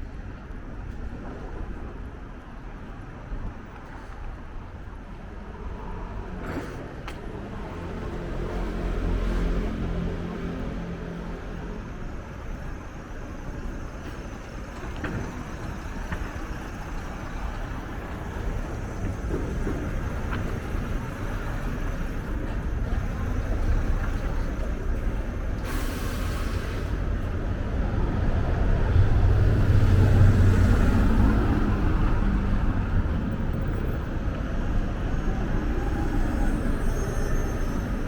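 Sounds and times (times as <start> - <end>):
traffic passing: 0.0 - 38.0
short hiss: 25.6 - 27.0.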